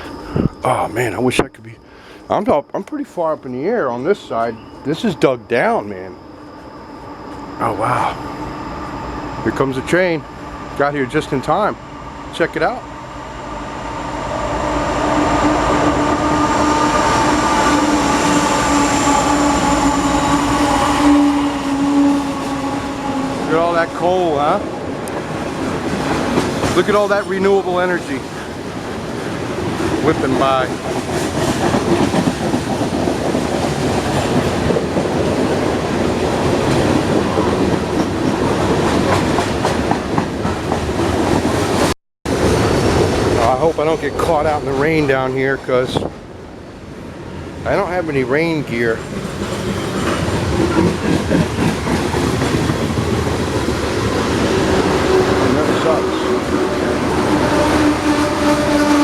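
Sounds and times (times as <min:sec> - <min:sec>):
held ringing tones: 0:00.0 - 0:12.6
freight train wagons rumbling: 0:00.0 - 0:12.9, 0:14.6 - 0:59.0.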